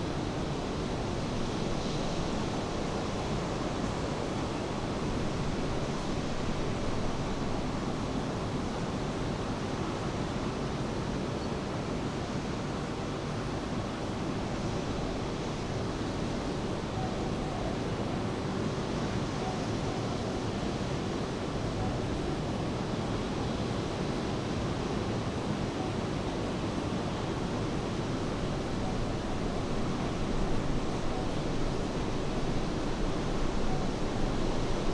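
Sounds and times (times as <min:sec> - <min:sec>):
steady rain: 0:27.0 - 0:34.9.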